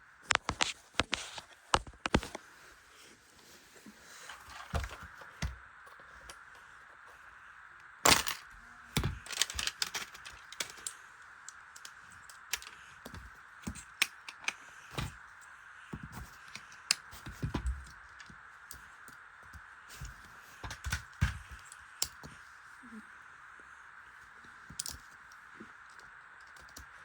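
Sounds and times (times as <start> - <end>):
plastic bricks clicking together: 8.1 - 15.1.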